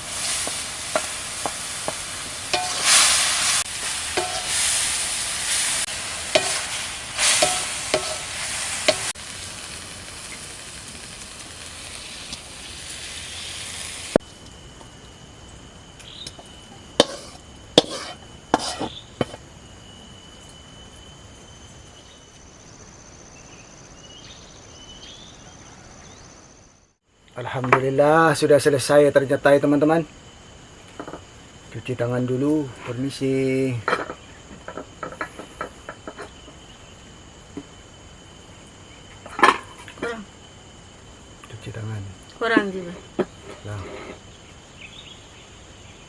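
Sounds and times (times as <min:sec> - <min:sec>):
oil sizzling in a pan: 0:00.0 - 0:14.3, 0:16.0 - 0:19.4
spatula scraping a pan: 0:00.1 - 0:09.1, 0:17.0 - 0:19.4, 0:42.9 - 0:44.2.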